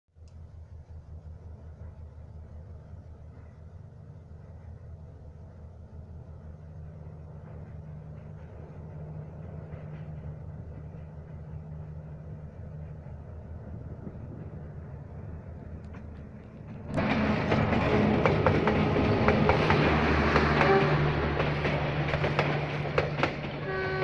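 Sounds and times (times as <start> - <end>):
locomotive engine drone: 0.2 - 24.0
wheels clacking on rails: 6.8 - 24.0.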